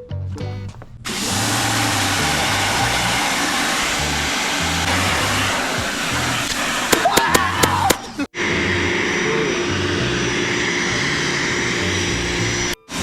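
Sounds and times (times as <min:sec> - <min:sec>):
background music with bass: 0:00.0 - 0:03.2, 0:07.0 - 0:13.0
water spraying hiss: 0:00.5 - 0:13.0.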